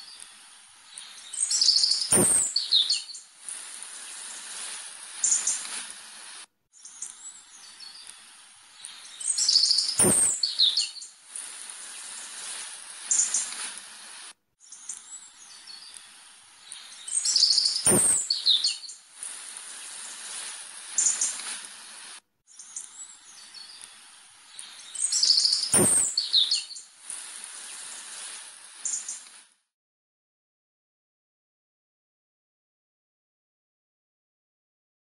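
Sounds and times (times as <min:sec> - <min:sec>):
birds chirping: 0:00.0 - 0:05.9, 0:06.8 - 0:13.6, 0:14.6 - 0:21.5, 0:22.5 - 0:29.3
steady hiss: 0:00.0 - 0:29.7
sharp click: 0:02.0 - 0:02.6, 0:09.7 - 0:10.6, 0:17.6 - 0:18.5, 0:25.5 - 0:26.3.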